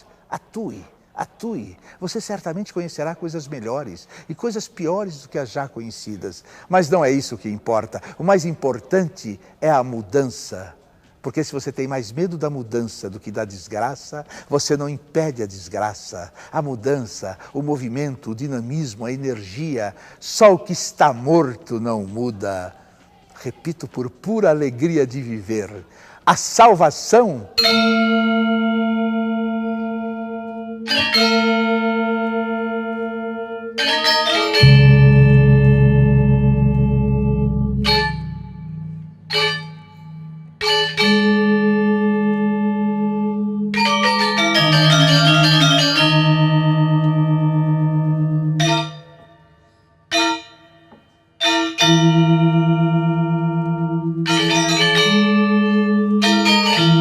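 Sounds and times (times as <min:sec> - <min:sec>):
struck metallic bell-like notes: 0:27.6 - 0:57.0
metal bell ringing: 0:33.9 - 0:41.8, 0:48.6 - 0:49.4.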